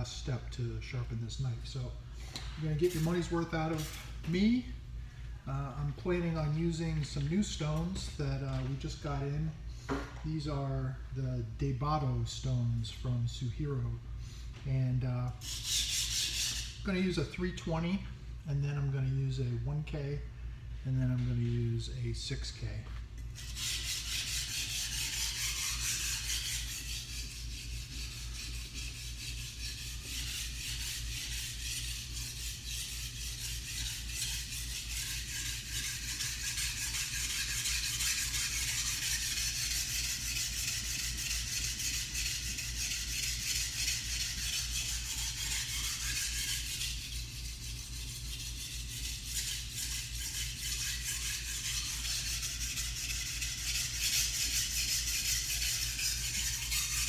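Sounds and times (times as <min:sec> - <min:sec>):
knife scraping on whetstone: 0:02.7 - 0:04.3, 0:15.4 - 0:16.8, 0:23.4 - 0:57.0.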